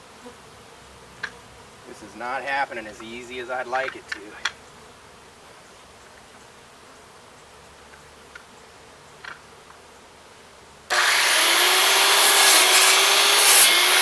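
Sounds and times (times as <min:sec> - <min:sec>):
power saw cutting wood: 0:10.9 - 0:14.0.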